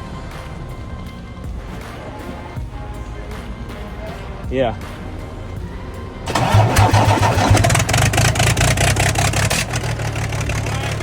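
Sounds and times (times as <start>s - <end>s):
diesel engine running loudly: 6.3s - 11.0s.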